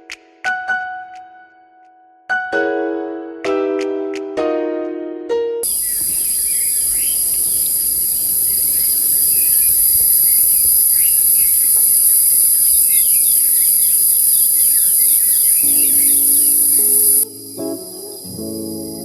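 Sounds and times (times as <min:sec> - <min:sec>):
birds chirping: 0:05.6 - 0:19.0
insect chorus trilling: 0:05.6 - 0:19.0.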